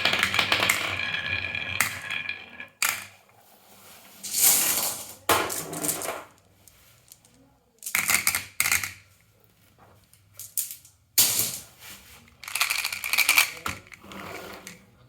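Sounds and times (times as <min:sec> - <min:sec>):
marbles clattering through wooden run: 0:00.0 - 0:03.1, 0:12.4 - 0:14.1.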